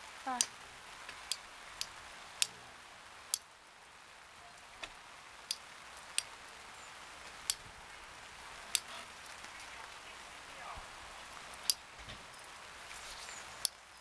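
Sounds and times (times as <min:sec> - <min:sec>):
rain hiss: 0:00.0 - 0:14.0
sharp ticks: 0:01.3 - 0:02.5, 0:11.6 - 0:11.8.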